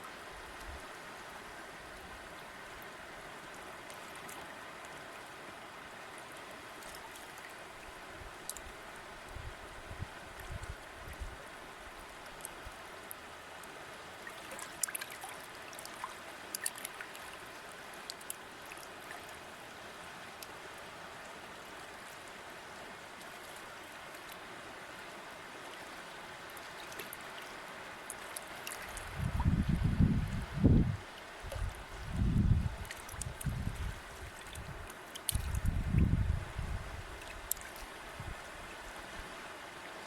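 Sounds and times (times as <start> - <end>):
stream running: 0.0 - 40.0
water splashes and drips: 0.4 - 40.0.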